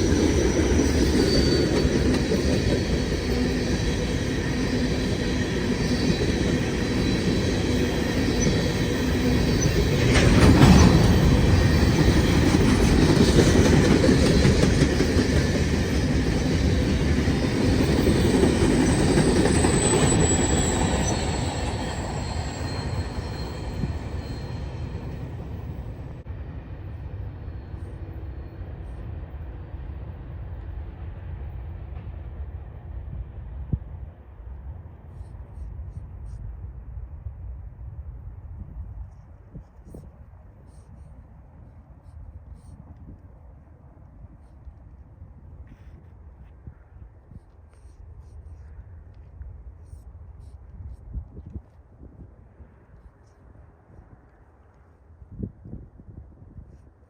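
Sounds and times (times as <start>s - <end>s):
high wheel squeal: 0.0s - 26.2s
train wheels clattering on rails: 0.0s - 26.2s.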